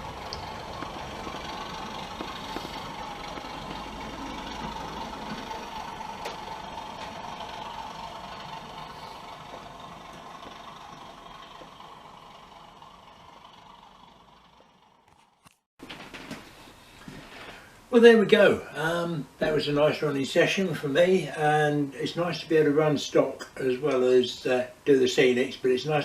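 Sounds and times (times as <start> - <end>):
model diesel train engine running: 0.0 - 15.1.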